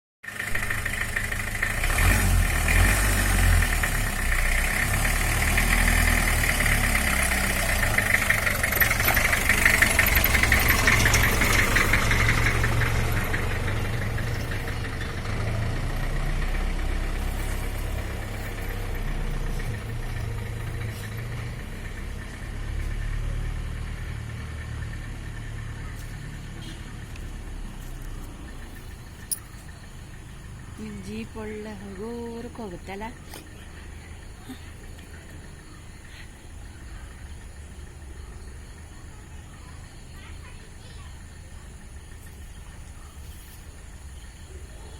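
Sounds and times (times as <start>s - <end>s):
jeep engine running: 0.2s - 44.9s.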